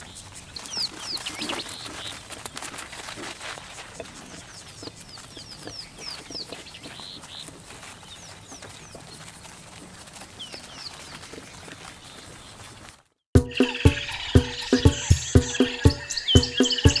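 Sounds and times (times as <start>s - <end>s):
birds chirping: 0.0s - 2.4s, 3.9s - 9.5s, 10.1s - 12.8s, 13.4s - 17.0s
harsh hissy bird call: 13.6s - 17.0s.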